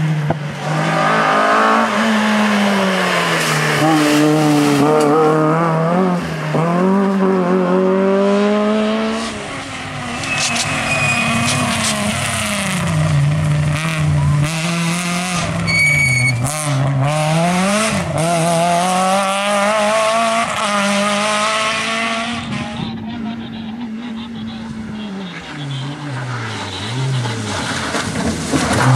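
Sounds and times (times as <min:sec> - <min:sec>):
rally car engine revving: 0:00.0 - 0:28.9
short high-pitched tone: 0:09.9 - 0:12.3.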